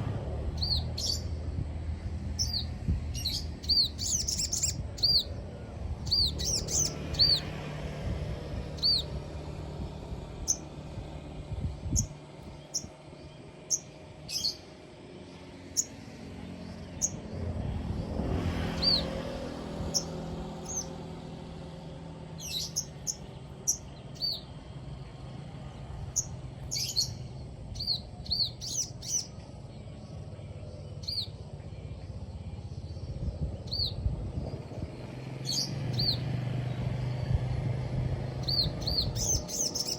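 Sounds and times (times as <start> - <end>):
low background rumble: 0.0 - 39.9
bird chirping: 0.6 - 1.4, 2.3 - 5.4, 6.0 - 7.6, 8.6 - 9.3, 10.4 - 10.8, 11.8 - 14.7, 15.3 - 17.4, 19.8 - 21.0, 22.3 - 29.9, 30.8 - 31.5, 38.4 - 39.9.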